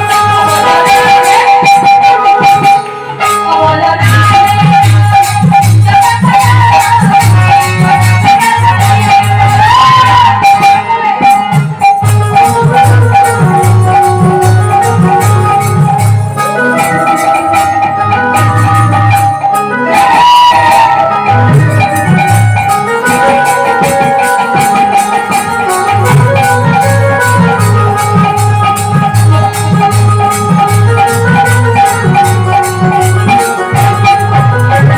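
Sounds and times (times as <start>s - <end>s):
sliding held melody: 0.0s - 34.9s
drum beat: 20.0s - 34.9s.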